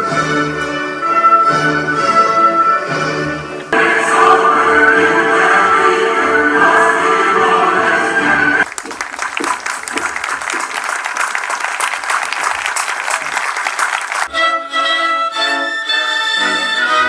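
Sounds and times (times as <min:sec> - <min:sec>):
audience applauding: 0:08.6 - 0:14.3
orchestra strings playing: 0:14.3 - 0:17.0.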